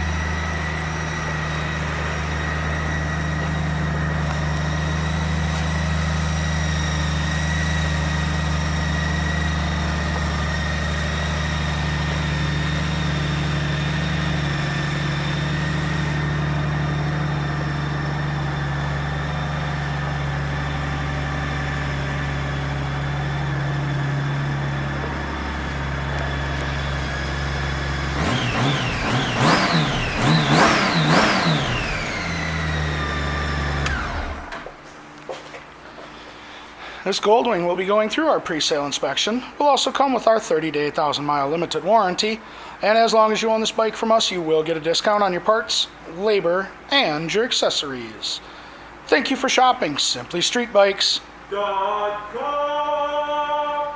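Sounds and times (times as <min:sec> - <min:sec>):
motorcycle engine idling and revving: 0:00.0 - 0:34.8.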